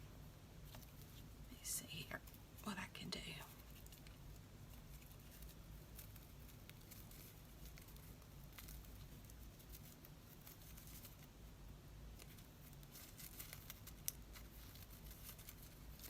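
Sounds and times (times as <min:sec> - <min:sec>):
paper rustling: 0:03.6 - 0:11.3, 0:12.2 - 0:16.0.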